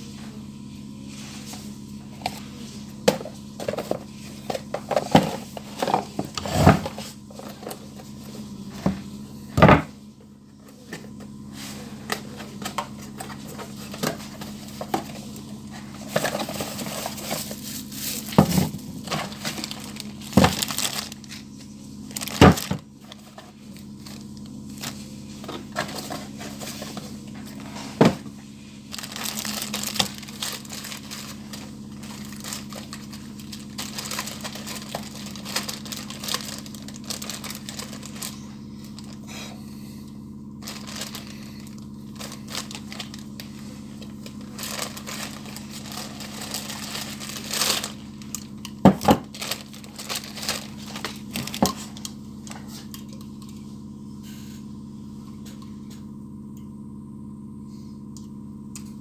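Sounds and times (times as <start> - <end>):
steady low hum: 0.0 - 59.0
rustling: 44.4 - 48.1.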